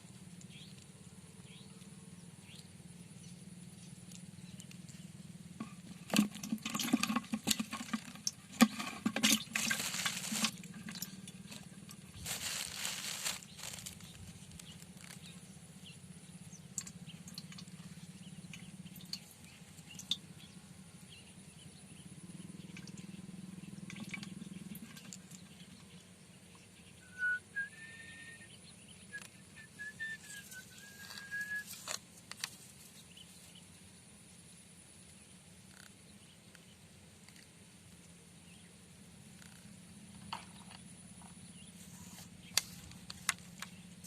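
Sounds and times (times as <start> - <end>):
steady low hum: 0.0 - 44.0
thin whistled bird notes: 26.6 - 32.0.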